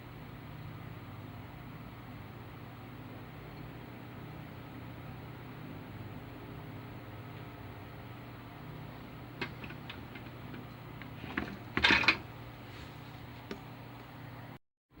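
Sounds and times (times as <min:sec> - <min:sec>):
steady low hum: 0:00.0 - 0:15.0
clatter of hard objects: 0:09.4 - 0:12.3.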